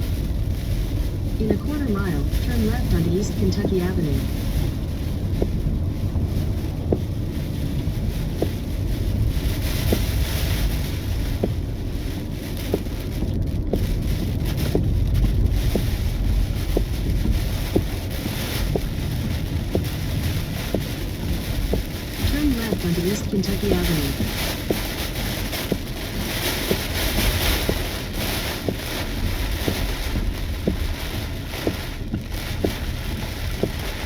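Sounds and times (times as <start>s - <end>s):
car road and wind rumble: 0.0s - 34.0s
soft ticking: 12.6s - 28.0s.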